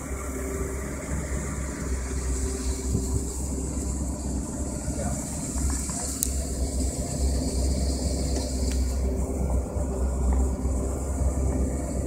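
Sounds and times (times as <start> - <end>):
boat engine idling: 0.0 - 12.0.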